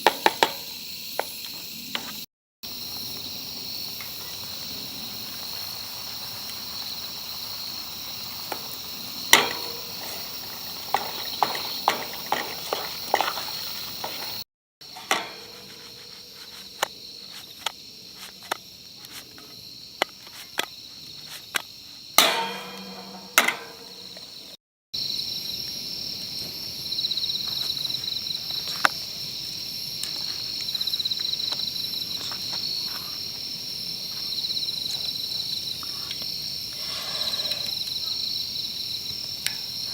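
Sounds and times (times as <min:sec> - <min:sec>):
insects chirping: 0:00.0 - 0:39.9
metallic clink: 0:22.2 - 0:24.3.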